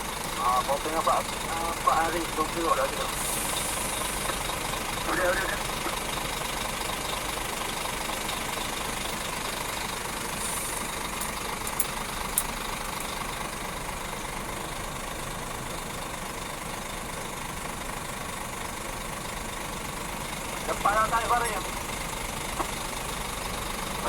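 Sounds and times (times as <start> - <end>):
truck diesel engine running: 0.0 - 24.0.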